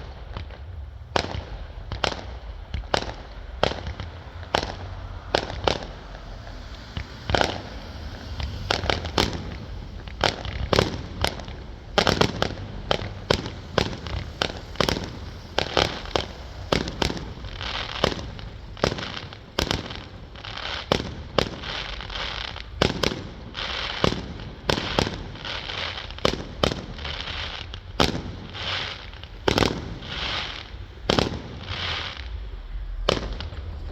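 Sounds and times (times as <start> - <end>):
fireworks bursting with sharp bangs: 0.0 - 33.9
fireworks crackling and hissing: 0.0 - 33.9.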